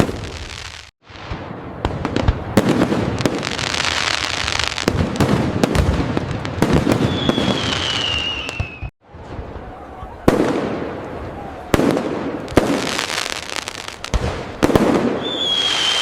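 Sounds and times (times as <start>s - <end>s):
fireworks bangs and crackling: 0.0s - 16.0s
firework whistle sliding down: 7.0s - 8.9s, 15.2s - 16.0s.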